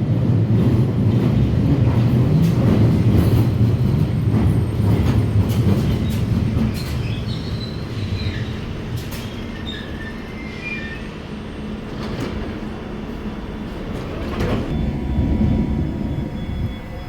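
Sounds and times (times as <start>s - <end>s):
underground train rumbling: 0.0s - 17.0s
train wheels squealing: 3.7s - 12.2s.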